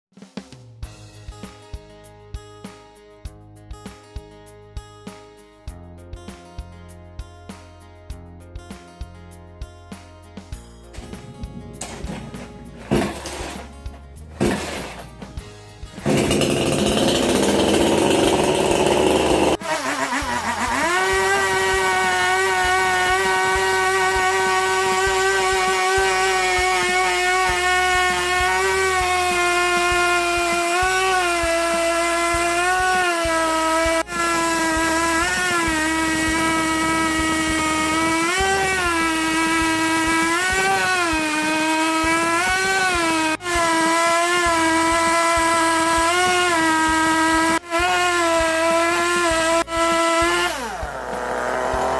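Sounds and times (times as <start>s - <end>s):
power tool cutting wood: 11.0s - 15.3s, 16.0s - 51.9s.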